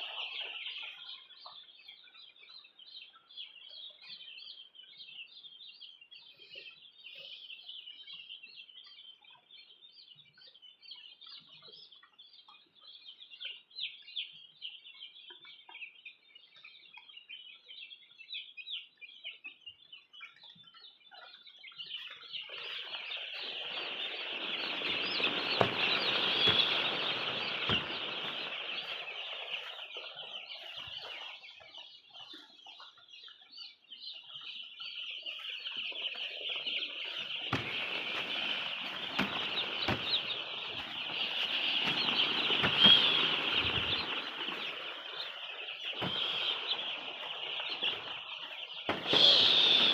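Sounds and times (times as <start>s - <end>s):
chicks peeping: 0.0s - 49.9s
knocks: 24.6s - 28.5s
rushing noise: 48.9s - 49.9s.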